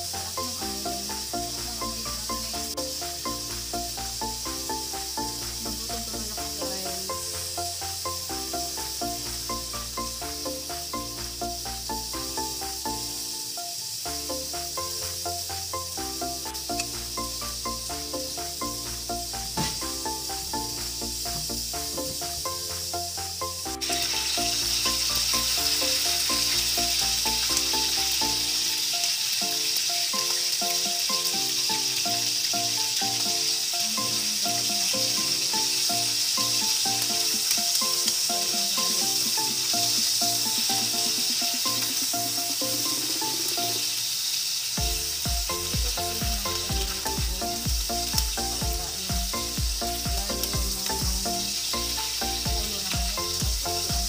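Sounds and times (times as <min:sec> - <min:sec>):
background music: 0:00.0 - 0:54.0
livers sizzling in oil: 0:00.0 - 0:54.0
low regular beat: 0:44.8 - 0:54.0.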